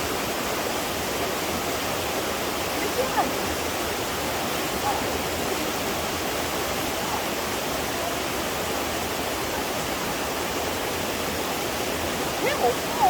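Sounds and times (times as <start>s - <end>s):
fast-flowing stream: 0.0s - 13.0s.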